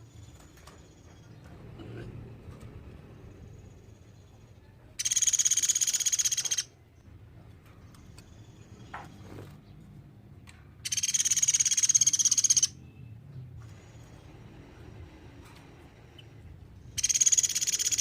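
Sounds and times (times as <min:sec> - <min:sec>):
woodpecker high-pitched trills: 0:05.0 - 0:06.8, 0:10.8 - 0:12.8, 0:16.9 - 0:18.0.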